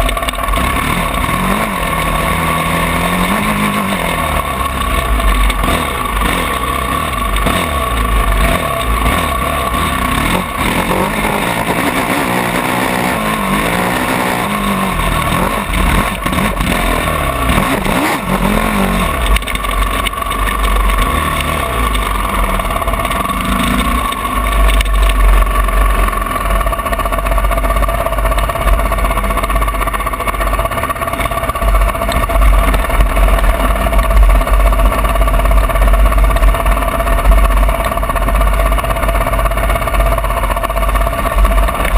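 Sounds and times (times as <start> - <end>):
motocross bike engine revving: 0.0 - 41.9.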